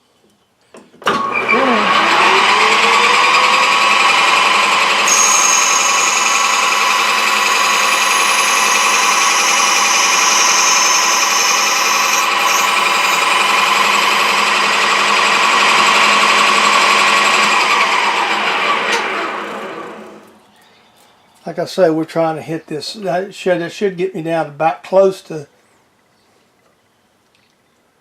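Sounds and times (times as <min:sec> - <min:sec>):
metal lathe whining: 0:01.2 - 0:19.7.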